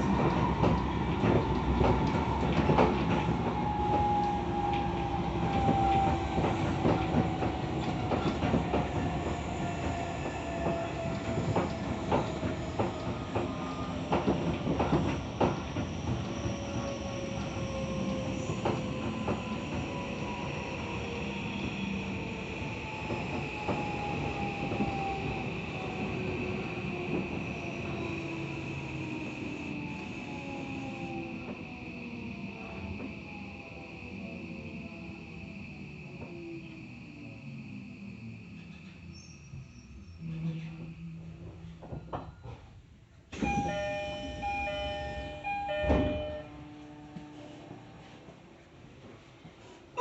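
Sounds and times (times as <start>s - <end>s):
train wheels rumbling on rail: 0.0s - 50.0s
two-tone train door chime: 43.4s - 47.3s.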